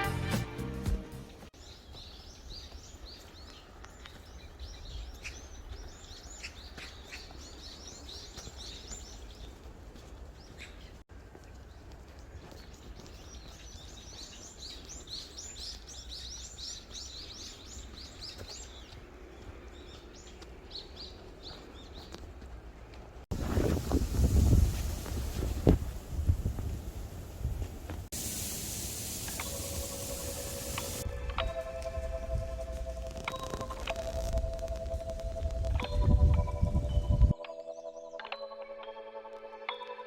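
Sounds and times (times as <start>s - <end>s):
small songbirds chirping: 1.5s - 22.4s, 28.2s - 31.1s.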